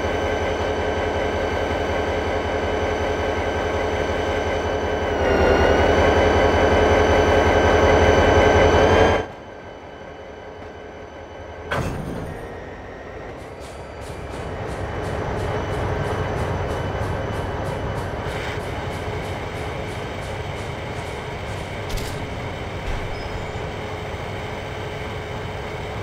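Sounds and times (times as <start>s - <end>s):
train rumble with sustained tone: 0.0s - 26.0s
rail clicking rhythm: 13.2s - 26.0s
sharp click: 21.5s - 23.1s.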